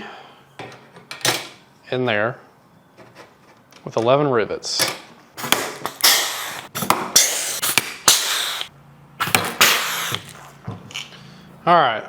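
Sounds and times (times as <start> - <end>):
air hiss: 5.7 - 10.5.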